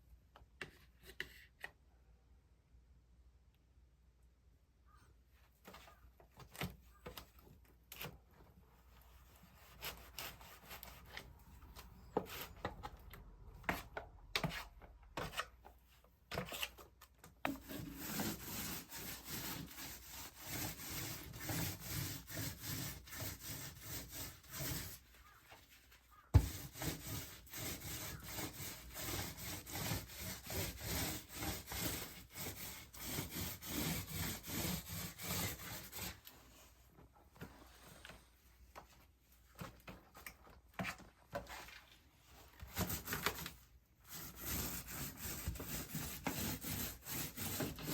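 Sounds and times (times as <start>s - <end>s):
rubbing strokes on wood: 17.5s - 36.2s, 44.1s - 47.9s.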